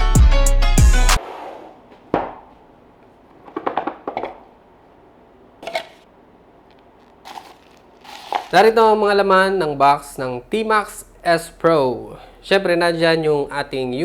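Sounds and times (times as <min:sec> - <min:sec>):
clattering knocks: 0:03.3 - 0:04.5
box and parts handled: 0:05.6 - 0:06.0, 0:06.7 - 0:08.7.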